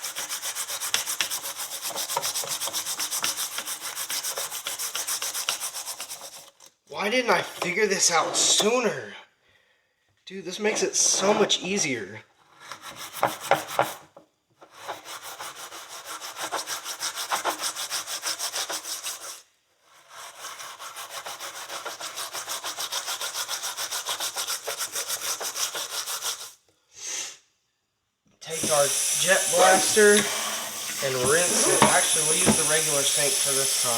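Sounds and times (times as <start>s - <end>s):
steel wool scrubbing metal: 28.5s - 33.9s.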